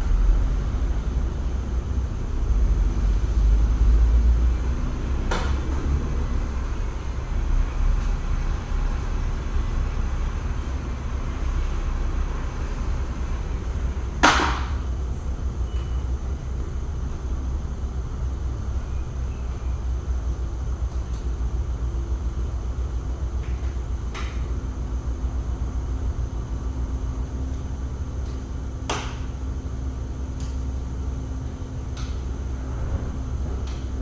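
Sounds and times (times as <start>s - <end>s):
workshop rumble: 0.0s - 34.0s
sharp knock: 14.2s - 14.8s.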